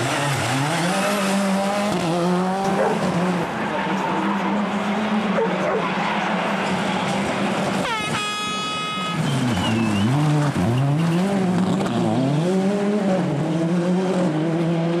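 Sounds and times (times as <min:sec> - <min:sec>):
rally car engine revving: 0:00.0 - 0:07.8, 0:09.2 - 0:15.0
tyre squeal: 0:09.0 - 0:11.3.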